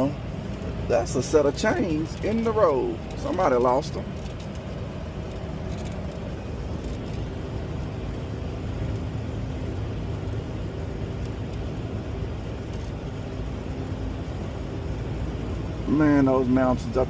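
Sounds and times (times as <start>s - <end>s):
truck engine and road noise: 0.0s - 17.0s.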